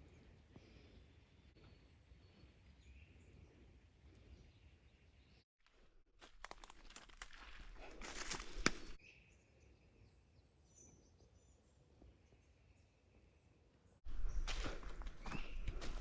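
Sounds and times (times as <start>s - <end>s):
crunching and rustling: 5.6s - 9.0s.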